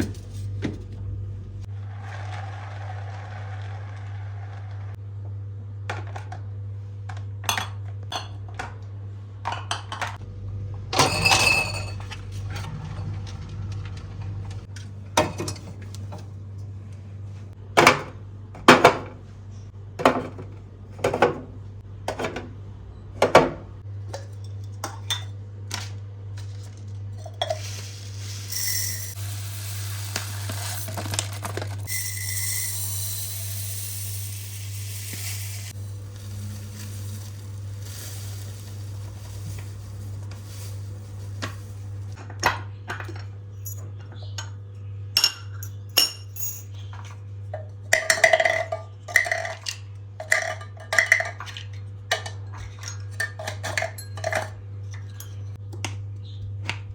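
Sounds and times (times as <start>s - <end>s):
dishes and glass clinking: 11.0s - 12.2s, 52.2s - 55.5s
low hum: 26.4s - 42.2s.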